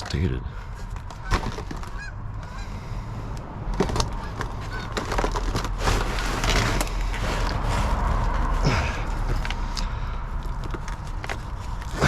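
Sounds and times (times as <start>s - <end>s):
crinkling plastic bags: 3.8s - 12.0s.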